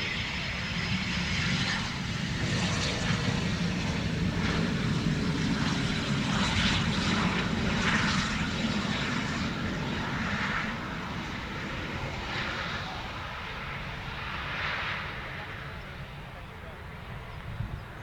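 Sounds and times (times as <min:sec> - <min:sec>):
airliner engines rumbling: 0:00.0 - 0:18.0.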